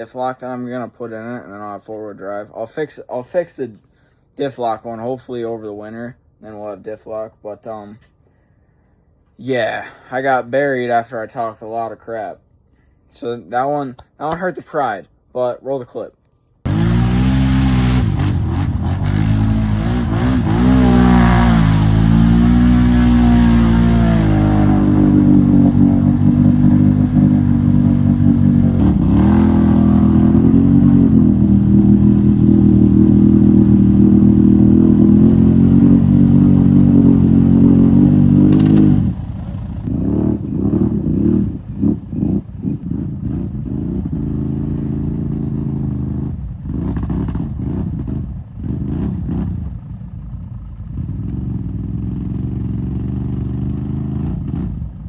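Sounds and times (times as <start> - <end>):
quad engine revving: 16.7 - 49.5.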